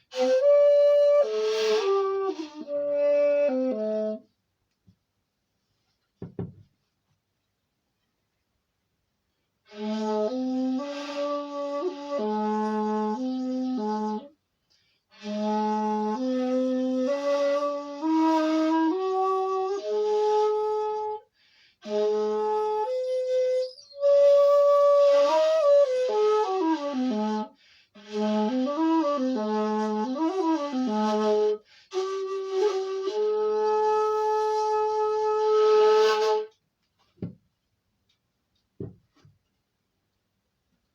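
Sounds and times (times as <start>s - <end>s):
bamboo flute melody: 0.0s - 4.3s, 9.7s - 14.4s, 15.1s - 36.6s.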